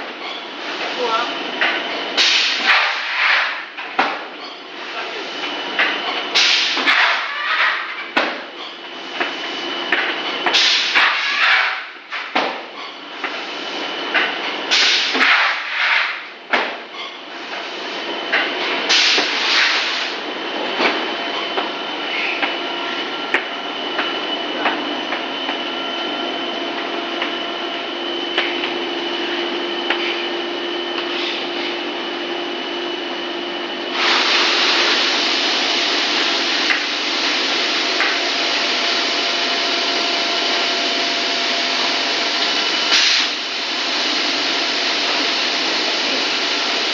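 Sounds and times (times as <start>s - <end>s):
extruder machine whine and hum: 0.0s - 46.9s
loud hiss: 33.9s - 36.1s.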